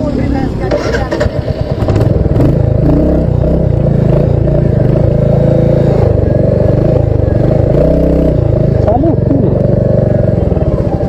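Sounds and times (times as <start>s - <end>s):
motorcycle engine running slowly: 0.1s - 11.0s.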